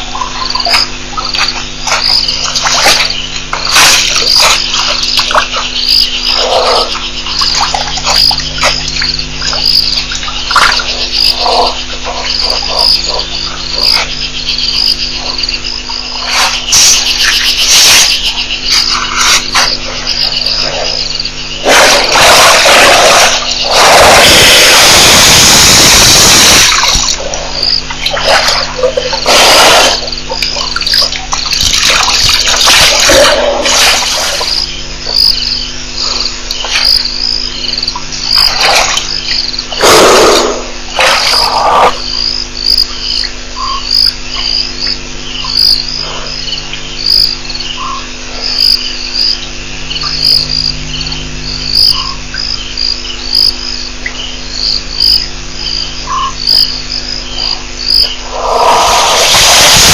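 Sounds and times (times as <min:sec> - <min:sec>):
insects and frogs calling: 0:00.0 - 0:59.9
steady low hum: 0:00.0 - 0:59.9
loud hiss: 0:21.6 - 0:27.6, 0:29.2 - 0:30.2, 0:32.6 - 0:34.6, 0:39.8 - 0:42.0, 0:58.2 - 0:59.9
loud noisy rushes: 0:21.6 - 0:30.1, 0:58.2 - 0:59.9.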